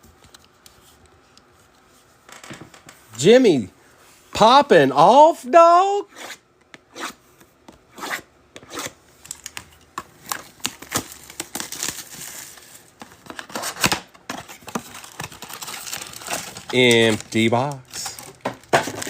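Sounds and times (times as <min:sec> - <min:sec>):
shrink wrap tearing: 0:10.2 - 0:19.0.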